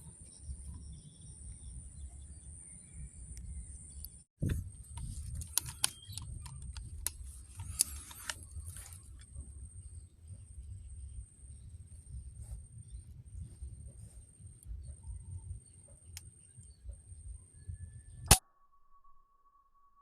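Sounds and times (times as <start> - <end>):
wind rumble on microphone: 0.0 - 18.3
high-pitched whine: 0.0 - 20.0
handling clicks and rustles: 4.4 - 9.5.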